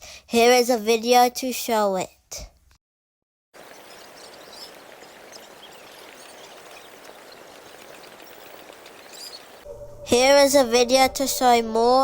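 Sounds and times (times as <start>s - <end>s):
outdoor ambience hiss: 3.6s - 12.0s.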